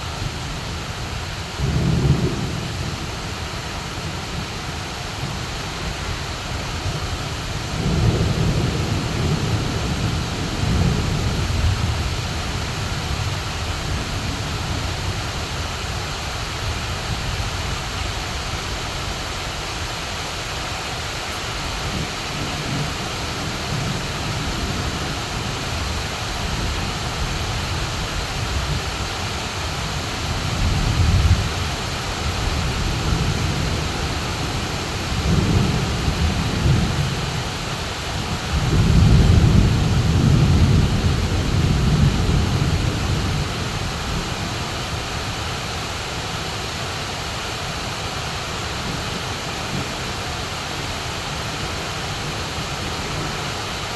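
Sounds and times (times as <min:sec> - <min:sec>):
heavy rain pouring: 0:00.0 - 0:53.9
thunder rumbling: 0:06.9 - 0:14.8, 0:21.8 - 0:45.0.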